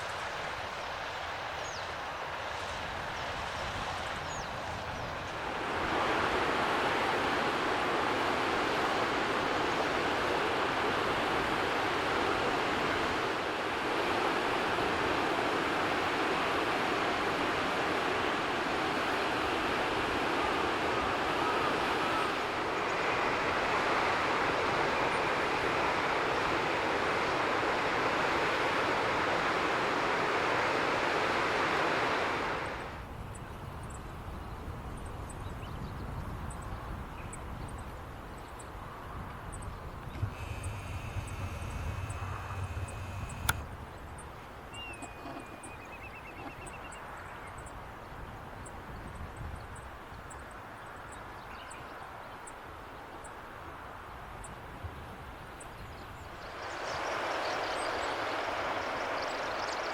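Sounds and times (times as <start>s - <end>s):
steady rushing noise: 40.2s - 43.8s, 56.4s - 59.9s
bird call with trill: 44.8s - 47.0s.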